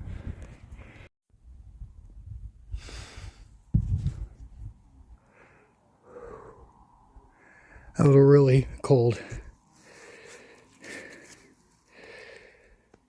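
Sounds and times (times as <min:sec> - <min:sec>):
low rumble of wind: 0:00.0 - 0:10.5
person breathing hard and gasping: 0:05.2 - 0:07.9, 0:09.2 - 0:12.9.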